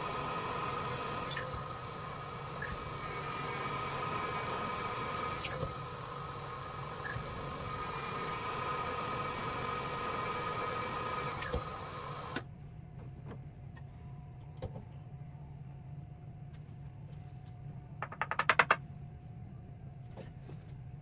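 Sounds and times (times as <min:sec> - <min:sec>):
electric motor whining: 0:00.0 - 0:12.4.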